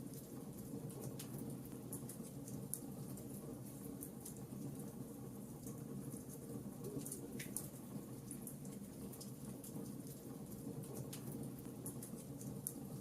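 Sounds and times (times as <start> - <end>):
fireplace crackling: 0.0 - 13.0.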